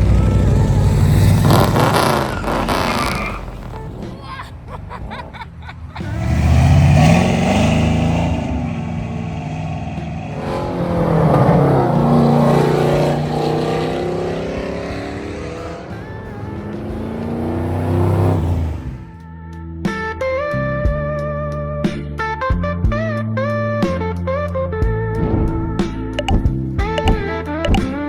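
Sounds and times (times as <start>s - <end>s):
car engine revving: 0.0s - 19.2s.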